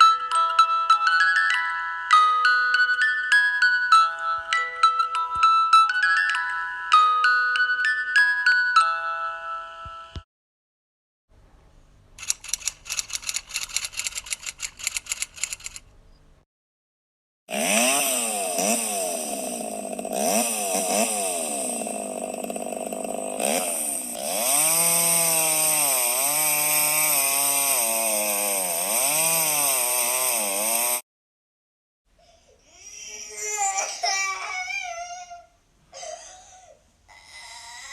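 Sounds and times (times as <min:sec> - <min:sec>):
rapid clicks: 0:12.2 - 0:15.9
small motor revving: 0:17.5 - 0:31.0.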